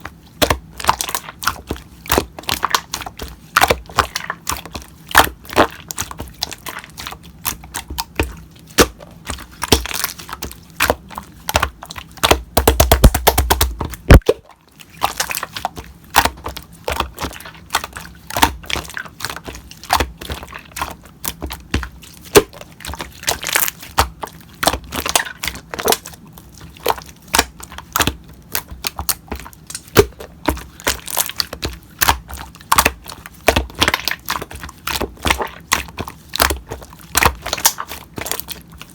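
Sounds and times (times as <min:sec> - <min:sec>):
slime crackling: 0:00.1 - 0:38.9
slime clicking and popping: 0:00.4 - 0:38.9.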